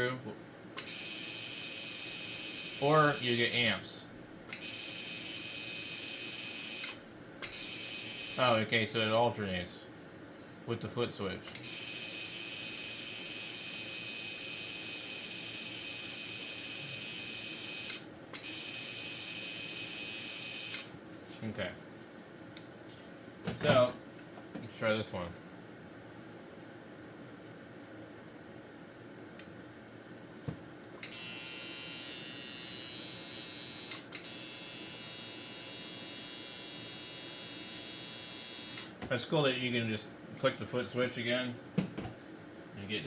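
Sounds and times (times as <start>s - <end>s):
tattoo machine motor whine: 0.8s - 3.8s, 4.5s - 8.6s, 11.6s - 21.0s, 31.0s - 39.0s.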